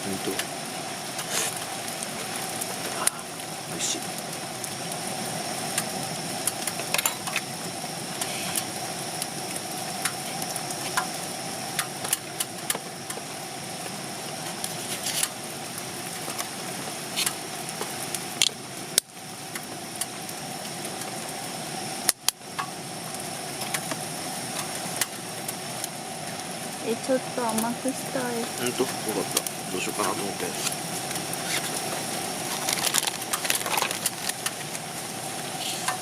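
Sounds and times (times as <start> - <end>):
gas burner hissing: 0.0 - 36.0
sharp pops and clicks: 17.2 - 20.1, 32.5 - 34.8.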